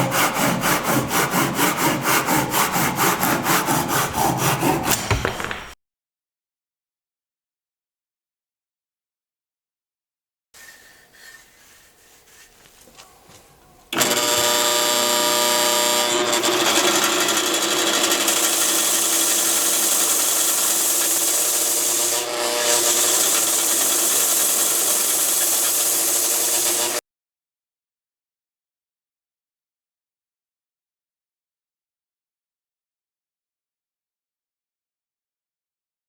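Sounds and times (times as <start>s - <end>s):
hand tool rasping wood: 0.0s - 5.2s, 14.0s - 27.0s.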